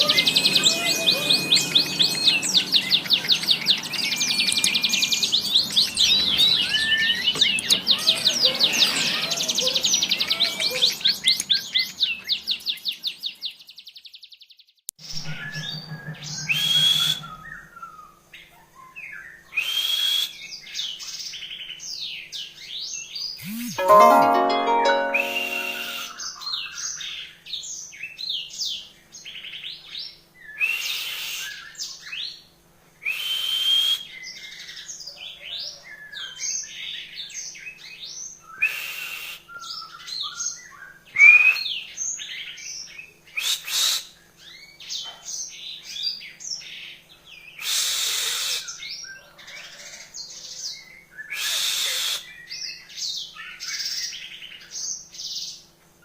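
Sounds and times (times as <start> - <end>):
canary singing: 0.0 - 12.7.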